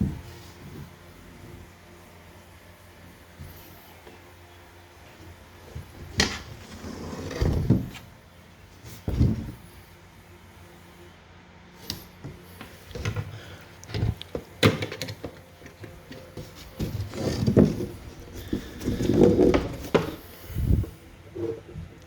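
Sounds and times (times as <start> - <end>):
wood knocks and scrapes: 6.1 - 8.0, 15.1 - 21.9.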